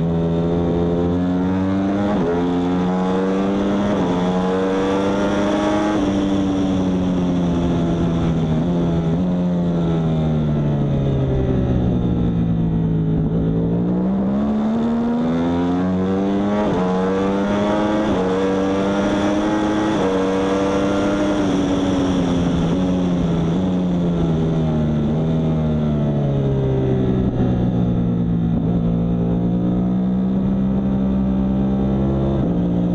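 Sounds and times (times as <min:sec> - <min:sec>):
superbike engine revving: 0:13.0 - 0:25.5.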